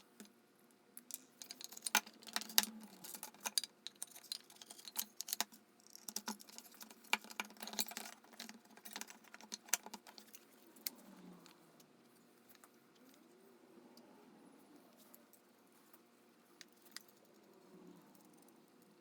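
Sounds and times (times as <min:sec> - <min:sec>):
small hard objects clicking: 0:01.0 - 0:10.4.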